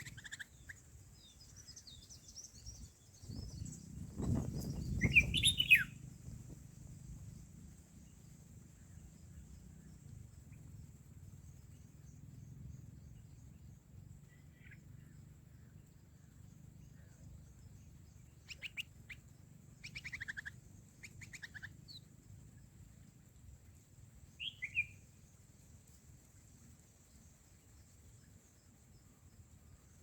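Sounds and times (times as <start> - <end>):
bird chirps: 0.0 - 22.7, 24.2 - 25.4
low background hum: 0.0 - 30.0.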